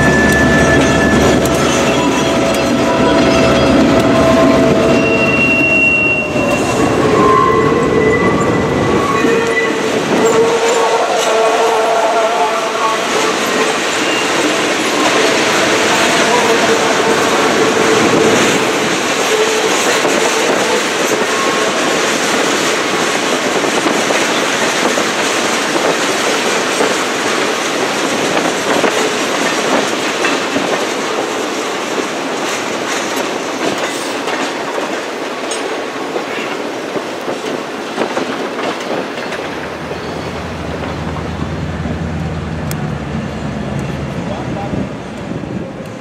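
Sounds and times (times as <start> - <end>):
low locomotive drone: 0.0 - 23.2, 39.0 - 46.0
wheels clicking over rail joints: 17.5 - 42.8.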